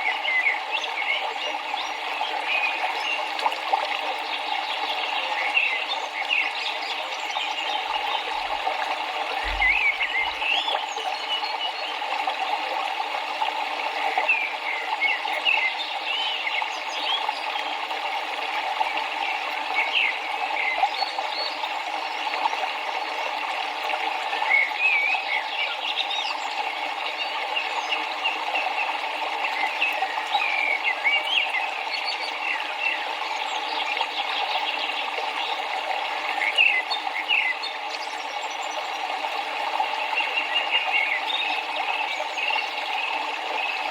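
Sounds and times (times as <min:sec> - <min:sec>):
river water running: 0:00.0 - 0:43.9
small birds chirping: 0:04.3 - 0:11.8.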